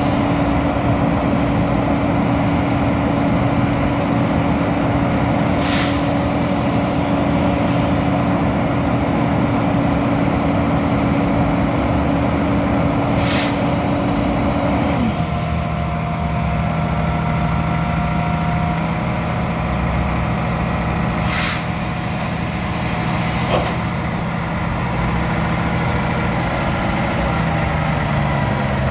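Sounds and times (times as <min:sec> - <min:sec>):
diesel truck engine running: 0:00.0 - 0:28.9
air hissing: 0:05.4 - 0:08.3, 0:13.0 - 0:15.8, 0:21.1 - 0:24.3.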